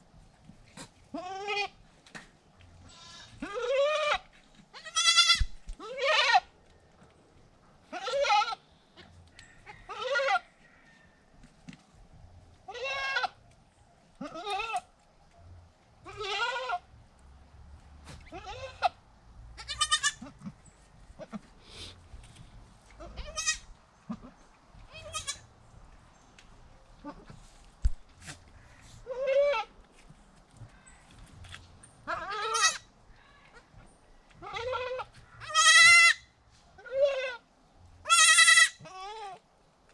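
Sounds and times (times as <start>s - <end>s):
goats bleating: 2.9s - 4.2s, 4.8s - 6.4s, 16.0s - 16.8s, 19.6s - 20.6s, 23.0s - 25.4s, 32.1s - 32.8s, 34.4s - 36.2s, 38.0s - 39.4s.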